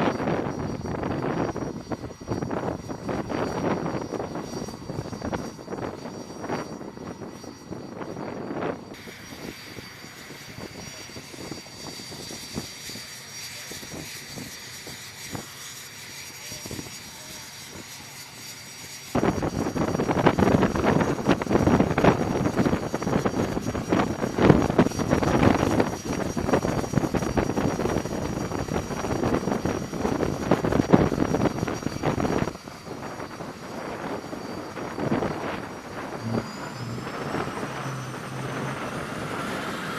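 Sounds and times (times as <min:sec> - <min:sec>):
loud jet engine noise: 0:00.0 - 0:39.9
steady high jet whine: 0:00.0 - 0:39.9.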